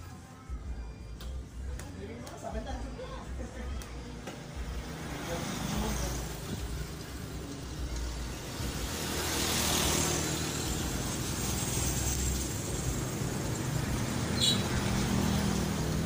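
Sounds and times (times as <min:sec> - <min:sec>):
road traffic rumbling hiss: 0:03.3 - 0:16.0.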